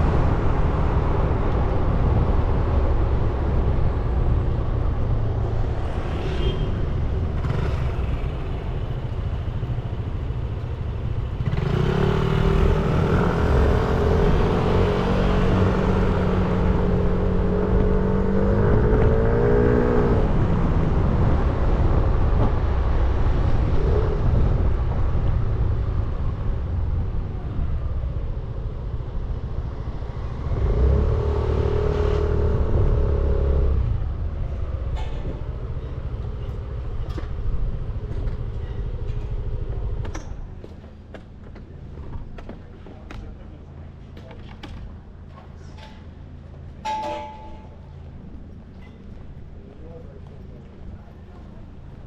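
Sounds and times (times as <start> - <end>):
road rumble: 0.0 - 52.0
motorbike engine accelerating: 7.2 - 21.5.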